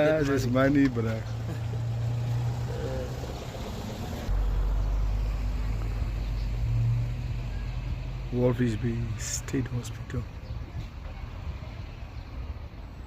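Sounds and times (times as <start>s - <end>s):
deep rumble: 2.1s - 8.0s.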